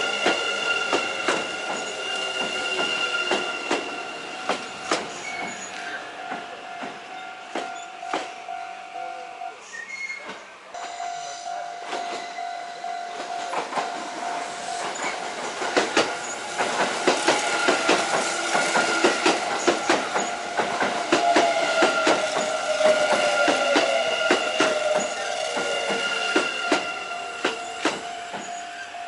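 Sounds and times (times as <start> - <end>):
train wheels clicking over rail joints: 0.0 - 8.5, 13.1 - 29.0
train horn: 21.0 - 29.0.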